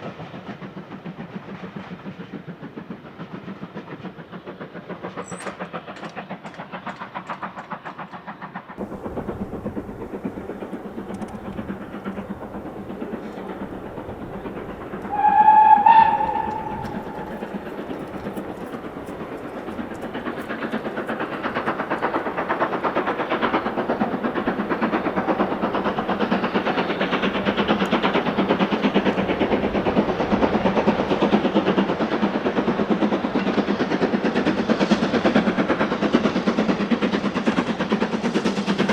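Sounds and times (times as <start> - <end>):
train running rhythmically: 0.0 - 38.9
train whistle blast: 15.0 - 18.4.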